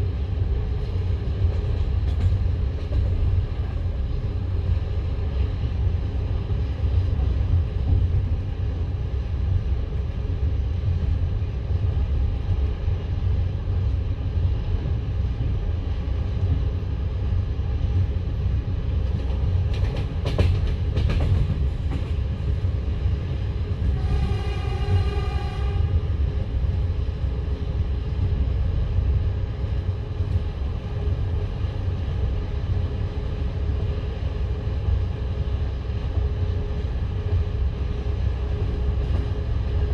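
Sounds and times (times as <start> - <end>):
train clatter: 0.0 - 10.2, 17.9 - 39.9
train wheels rumbling on rails: 0.0 - 39.9
train horn: 23.8 - 26.2.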